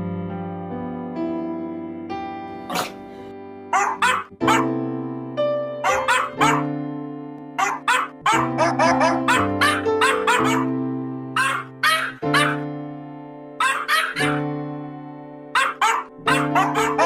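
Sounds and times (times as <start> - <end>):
sustained keyboard chords: 0.3 - 17.0
pitch-shifted dog barks: 3.8 - 4.7, 5.8 - 6.7, 7.6 - 10.7, 11.4 - 12.6, 13.6 - 14.4, 15.6 - 17.0.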